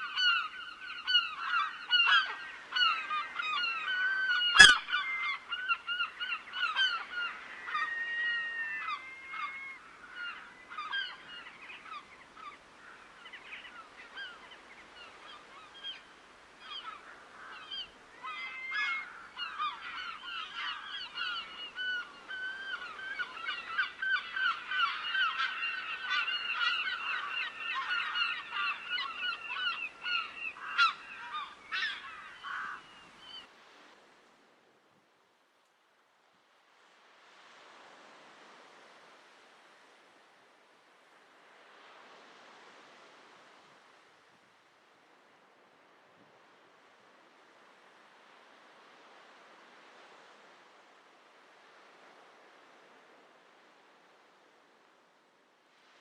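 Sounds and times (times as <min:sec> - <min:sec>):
geese honking: 0:04.4 - 0:04.9.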